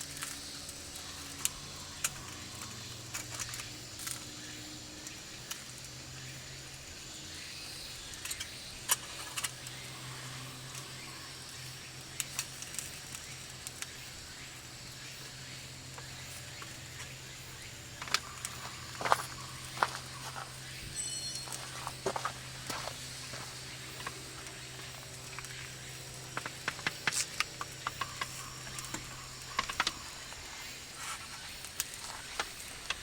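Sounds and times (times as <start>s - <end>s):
campfire crackling: 0.0s - 33.0s
steady low hum: 0.0s - 33.0s
sharp pops and clicks: 22.7s - 30.4s.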